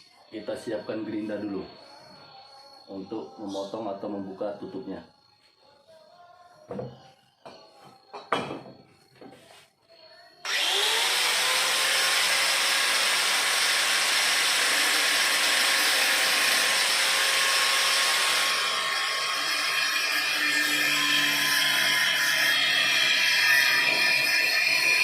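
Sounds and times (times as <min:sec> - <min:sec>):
angle grinder cutting steel: 0:10.5 - 0:25.0.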